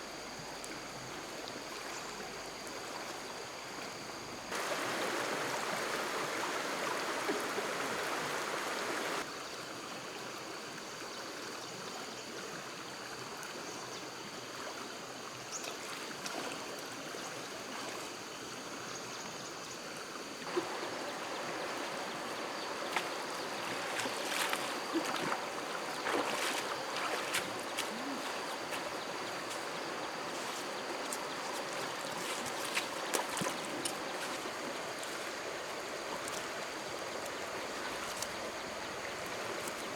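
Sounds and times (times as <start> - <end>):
stream water rushing: 4.5 - 9.3, 20.4 - 39.9.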